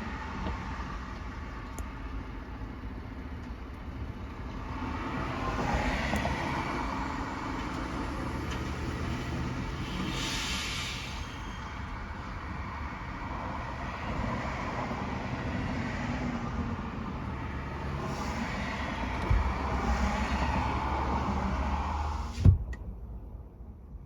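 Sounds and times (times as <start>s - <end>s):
truck engine and road noise: 0.0s - 24.0s
sharp thump: 22.4s - 22.9s.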